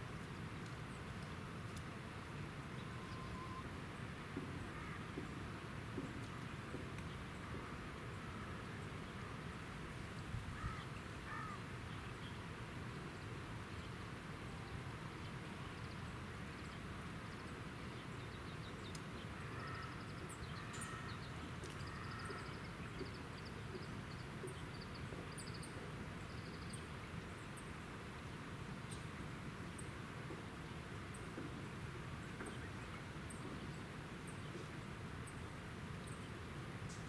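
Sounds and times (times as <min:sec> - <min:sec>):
background hiss: 0:00.0 - 0:37.0
birds calling: 0:10.5 - 0:12.4, 0:18.1 - 0:26.9.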